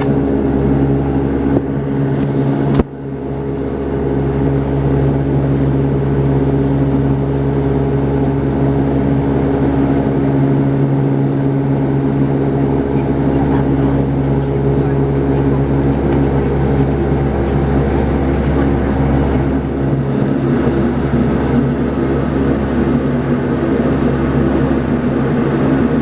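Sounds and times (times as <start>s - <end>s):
turboprop cabin drone: 0.0s - 26.0s.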